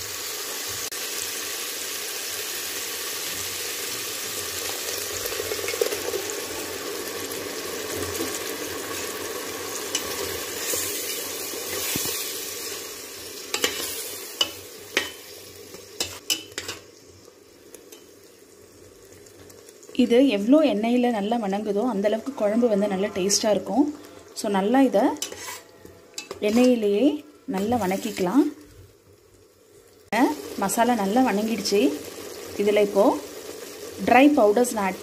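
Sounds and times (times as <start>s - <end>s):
paste sizzling in oil: 0.0s - 35.0s
metal spoon stirring: 16.0s - 16.8s, 25.2s - 26.9s.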